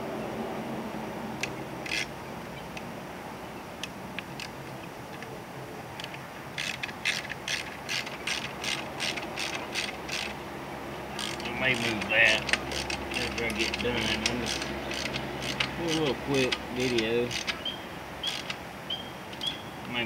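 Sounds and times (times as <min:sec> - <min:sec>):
ratchet wrench clicking: 0:01.9 - 0:02.1, 0:06.0 - 0:10.4, 0:11.2 - 0:17.6, 0:18.2 - 0:18.6.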